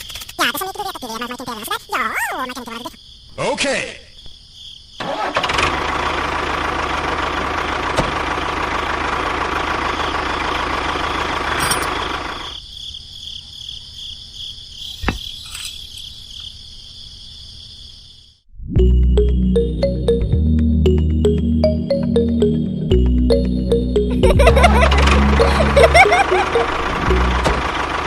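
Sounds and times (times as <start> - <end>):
crickets chirring: 0.0 - 5.3, 9.8 - 18.5
small tractor motor running: 5.0 - 12.5, 24.6 - 28.0.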